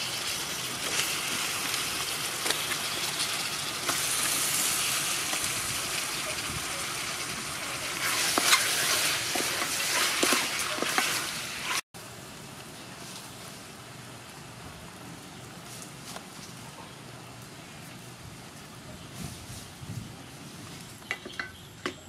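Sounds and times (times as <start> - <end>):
frying in hot oil: 0.0 - 16.1
wooden spoon scraping pot: 8.0 - 11.8.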